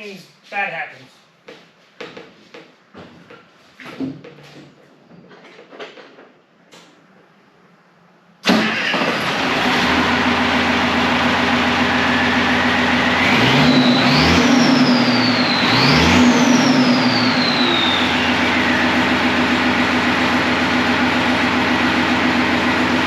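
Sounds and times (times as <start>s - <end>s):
diesel truck engine revving: 8.4s - 23.0s
high turbo whistle: 11.8s - 20.0s.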